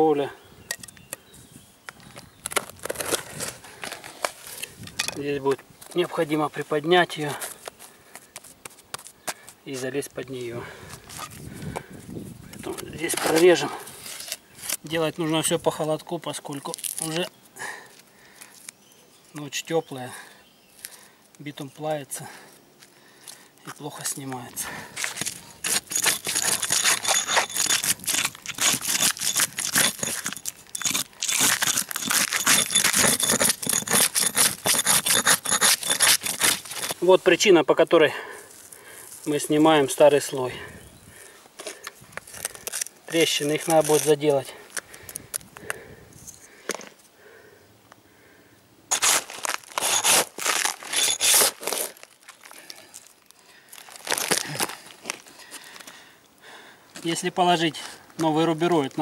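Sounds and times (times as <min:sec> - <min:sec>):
roofing felt scraped and torn: 0:25.0 - 0:37.1, 0:48.9 - 0:53.1.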